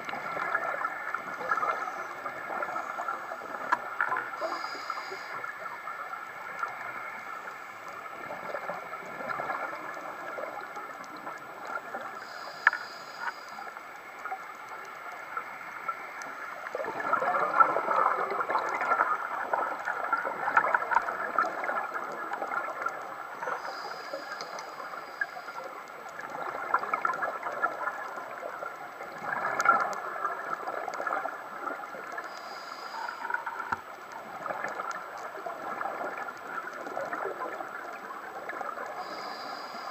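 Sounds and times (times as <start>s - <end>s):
exhaled bubbles gurgling: 0.0s - 12.4s, 13.6s - 23.8s, 24.8s - 39.9s
regulator inhalation hiss: 4.4s - 5.6s, 12.2s - 13.8s, 23.6s - 25.6s, 32.2s - 33.7s, 39.0s - 39.9s.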